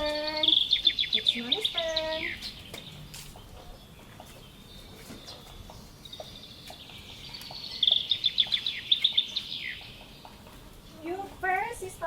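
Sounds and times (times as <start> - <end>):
songbird trilling: 0.0 - 10.4.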